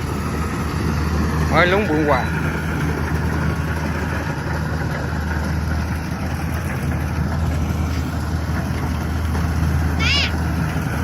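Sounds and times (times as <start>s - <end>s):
diesel engine droning: 0.0s - 11.0s
machinery noise: 0.0s - 11.0s.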